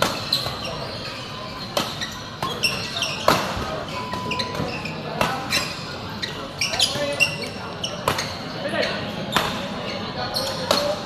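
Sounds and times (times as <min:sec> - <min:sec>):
sharp ball impacts: 0:00.0 - 0:00.7, 0:01.7 - 0:05.8
low background murmur: 0:00.0 - 0:11.0
shoe squeaks on floor: 0:00.0 - 0:11.0.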